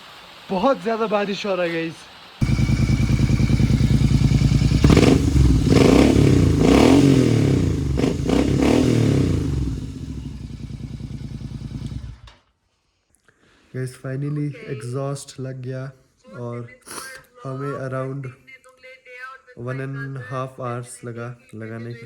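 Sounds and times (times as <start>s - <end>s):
motorcycle engine revving and idling: 2.4s - 12.4s.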